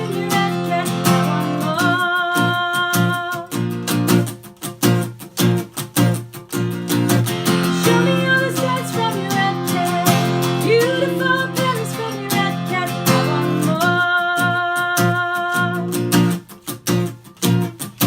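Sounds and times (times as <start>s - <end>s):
person singing wordless melody: 0.0s - 3.6s, 7.6s - 16.0s
acoustic guitar chords: 0.0s - 18.0s.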